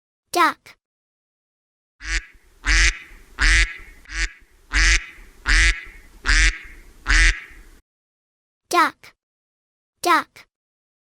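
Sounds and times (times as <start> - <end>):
duck quacking: 2.0 - 7.8.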